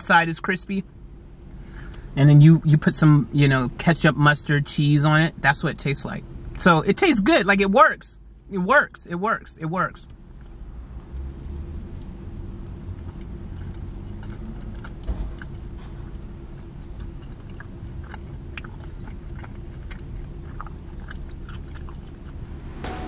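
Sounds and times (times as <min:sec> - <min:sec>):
steady low hum: 0:00.0 - 0:23.0
person chewing food: 0:10.0 - 0:22.8.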